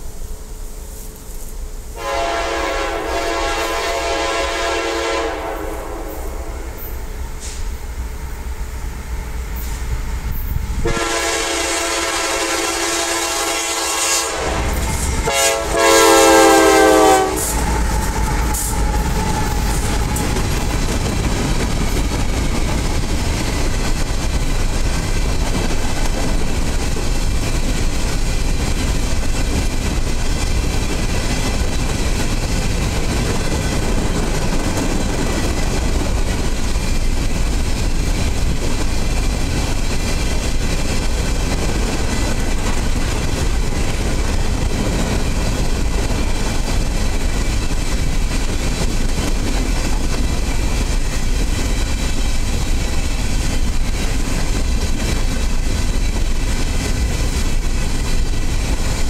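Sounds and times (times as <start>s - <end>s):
train rumbling past: 0.0s - 59.0s
locomotive horn blasts: 2.0s - 6.8s, 10.8s - 19.6s.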